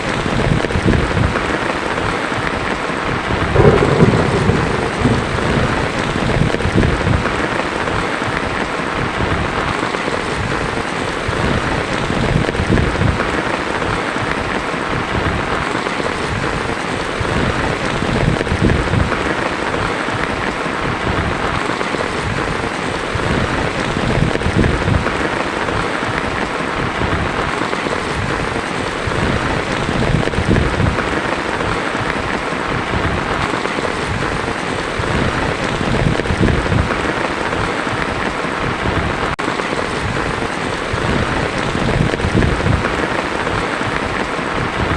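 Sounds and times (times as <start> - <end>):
heavy rain on a tin roof: 0.0 - 44.9
low rumble: 3.5 - 7.4.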